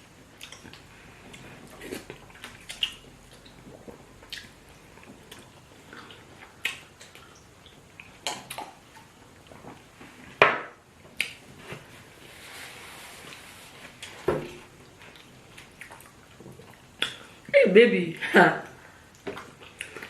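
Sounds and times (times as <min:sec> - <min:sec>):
wet smacks of eating by hand: 0:00.4 - 0:09.9, 0:11.1 - 0:11.9, 0:13.3 - 0:17.4, 0:19.1 - 0:20.0.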